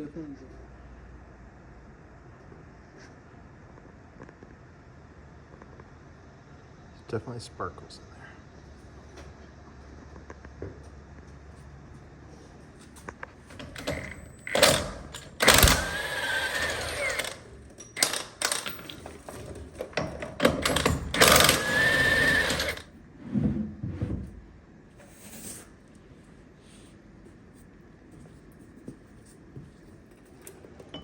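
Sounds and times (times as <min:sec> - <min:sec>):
power tool rattling and whining: 0:13.5 - 0:22.9.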